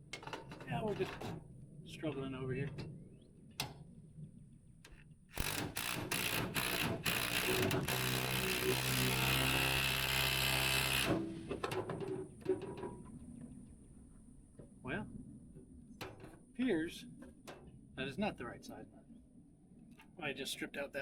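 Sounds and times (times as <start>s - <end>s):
power drill driving a bolt: 5.3s - 11.6s.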